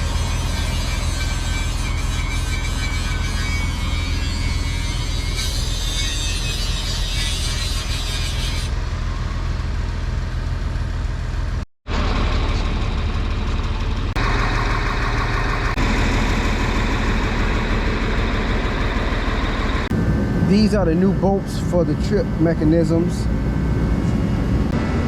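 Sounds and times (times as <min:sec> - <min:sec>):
vehicle engine running: 0:00.0 - 0:02.7, 0:08.7 - 0:25.0.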